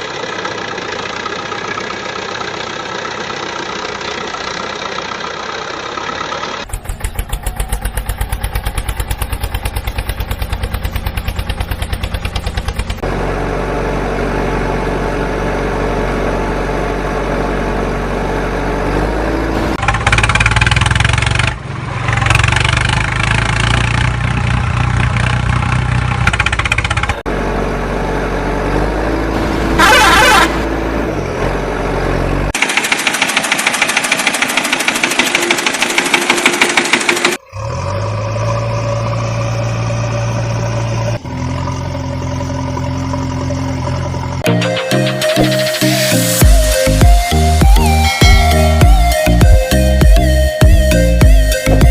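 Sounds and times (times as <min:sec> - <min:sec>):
engine running and idling: 0:00.0 - 0:51.9
brief high-pitched burst: 0:44.7 - 0:49.4.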